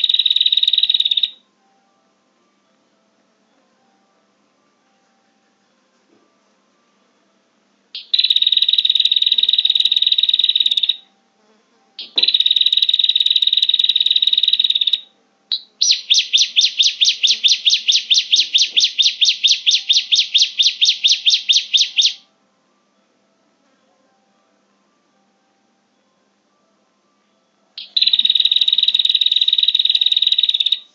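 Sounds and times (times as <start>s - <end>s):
buzzy bird trills: 0.0s - 1.4s, 8.0s - 11.0s, 12.0s - 22.2s, 27.8s - 30.9s
rapid repeated bird notes: 0.0s - 1.4s, 8.0s - 11.0s, 12.0s - 22.2s, 27.8s - 30.9s.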